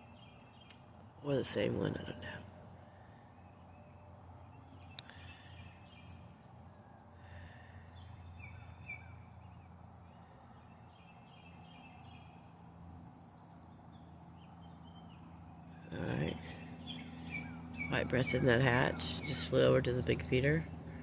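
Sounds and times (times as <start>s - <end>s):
small birds chirping: 0.0s - 21.0s
steady low background hum: 0.0s - 21.0s.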